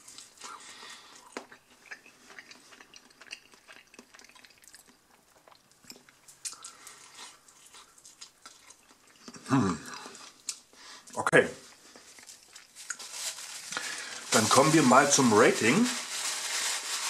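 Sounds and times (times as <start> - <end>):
person quietly chewing: 0.0 - 13.0.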